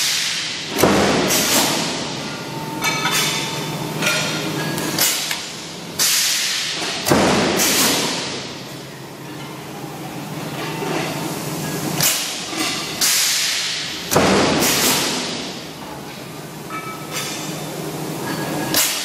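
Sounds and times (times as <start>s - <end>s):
machine knocks with hiss: 0.0s - 2.0s, 6.0s - 8.4s, 13.0s - 15.5s.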